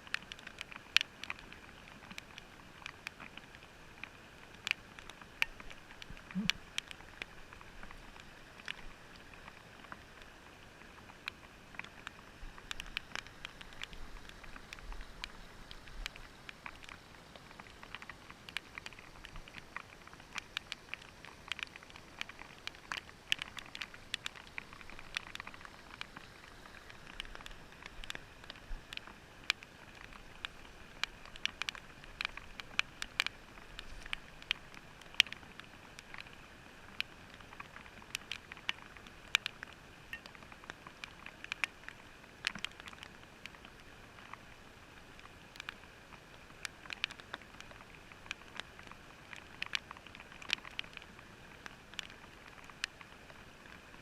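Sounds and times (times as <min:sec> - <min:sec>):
faint steady hiss: 0:00.0 - 0:54.0
muffled clicks and taps: 0:11.1 - 0:41.8.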